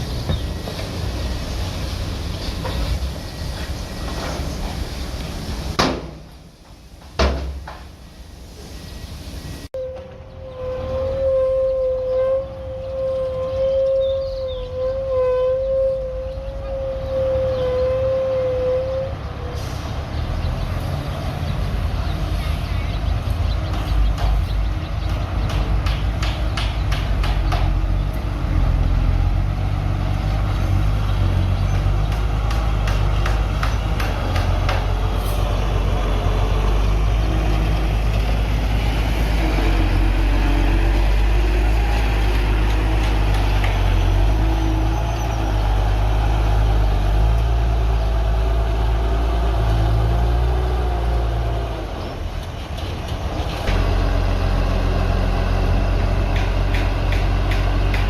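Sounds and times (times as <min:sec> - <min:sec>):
heavy diesel machinery engine: 0:00.0 - 0:58.0
wavering squeal: 0:09.7 - 0:19.2.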